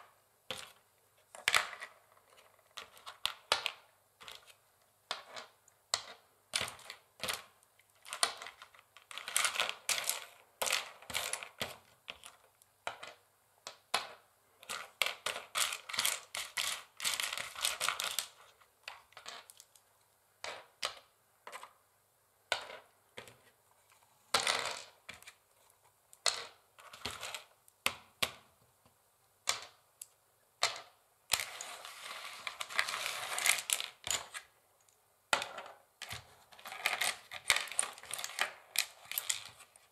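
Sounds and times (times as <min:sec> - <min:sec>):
nails scratching across board: 0:31.3 - 0:34.4.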